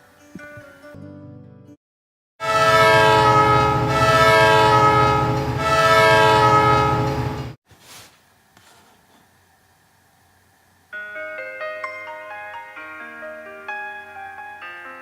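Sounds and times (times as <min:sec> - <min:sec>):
train horn chord: 0:02.4 - 0:07.5.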